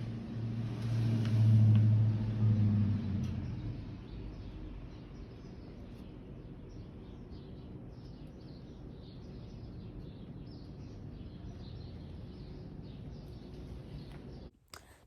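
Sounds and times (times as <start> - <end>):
small birds chirping: 3.1 - 15.0.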